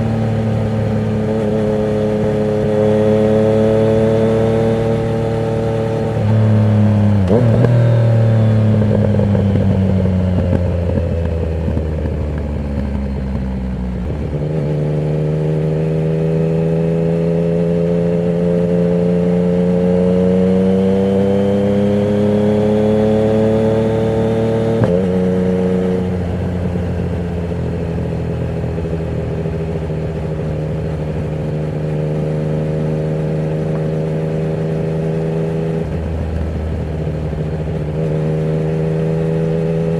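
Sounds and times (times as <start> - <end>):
gear change: 0.0 - 15.2
motorcycle engine revving: 0.0 - 39.9.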